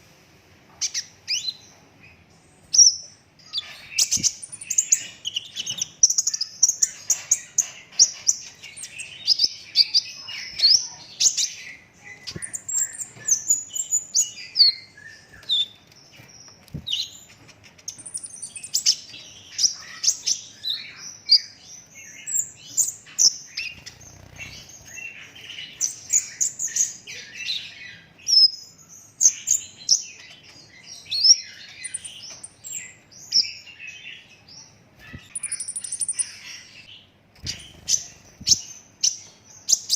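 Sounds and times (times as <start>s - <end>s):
bird singing high trills: 35.0s - 39.9s.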